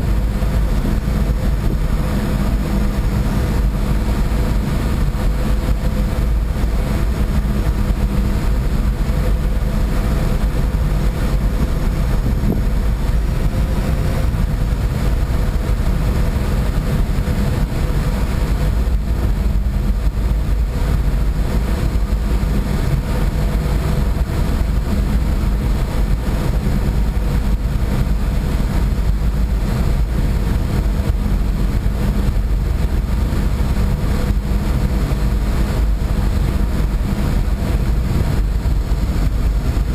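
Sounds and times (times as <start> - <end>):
boat engine low drone: 0.0 - 39.9.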